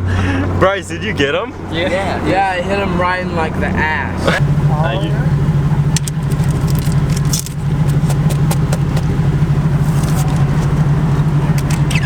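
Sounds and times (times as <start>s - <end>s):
sharp clicks and ticks: 5.9s - 9.2s, 11.5s - 12.0s.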